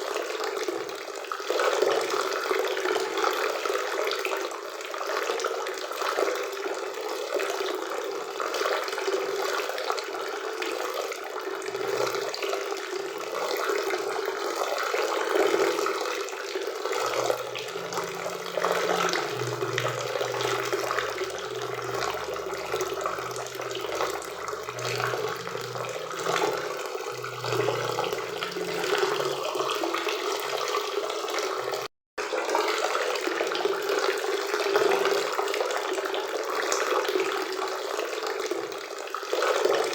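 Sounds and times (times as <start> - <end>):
faint low hum: 16.9 - 30.6.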